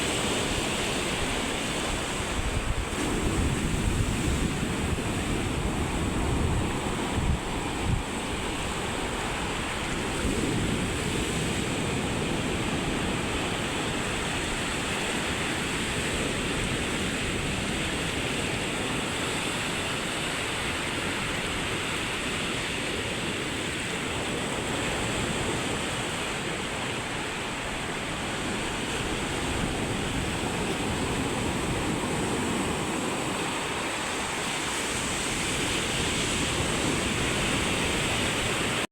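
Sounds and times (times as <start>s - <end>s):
sea surf on beach: 0.0s - 38.9s
wind buffeting microphone: 0.0s - 38.9s.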